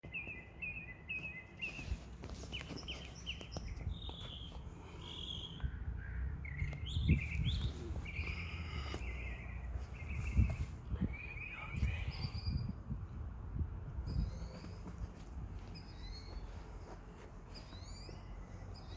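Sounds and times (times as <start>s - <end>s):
birds chirping and singing: 0.0s - 12.9s, 14.1s - 18.9s
steady low rumble: 3.6s - 17.5s.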